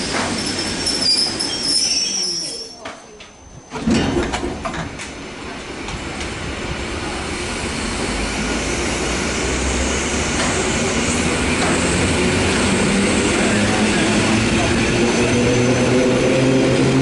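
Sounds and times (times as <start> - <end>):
electric train wheel and motor noise: 3.8 - 17.0.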